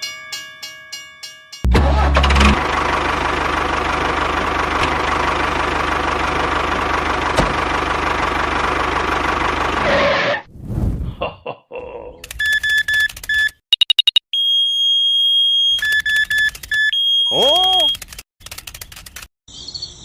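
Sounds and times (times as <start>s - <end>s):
engine chugging: 1.7s - 10.0s.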